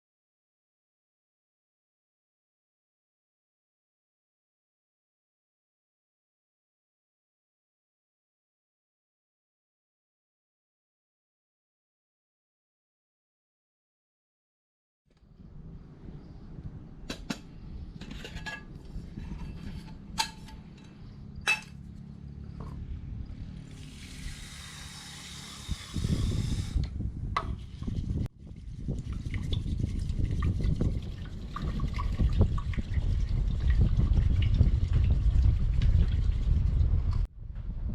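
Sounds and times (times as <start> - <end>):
low rumbling noise: 15.2 - 37.9
metal pot clinking: 18.0 - 21.8
water pouring into pot: 29.0 - 36.3.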